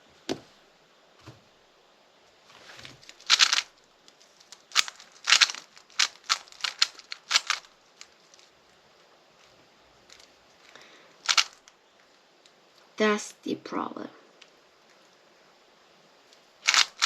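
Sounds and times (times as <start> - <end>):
puzzle cube clicking as turned: 3.1 - 3.7, 4.4 - 8.5, 10.1 - 11.7, 16.6 - 17.0.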